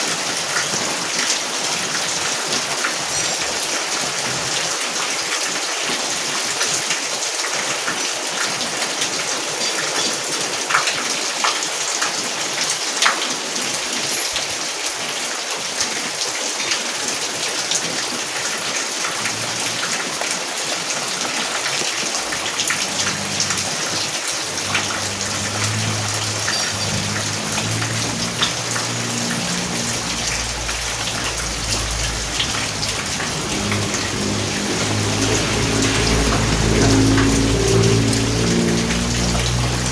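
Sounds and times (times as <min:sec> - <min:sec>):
steady rain falling: 0:00.0 - 0:39.9
low sustained notes: 0:22.5 - 0:39.9.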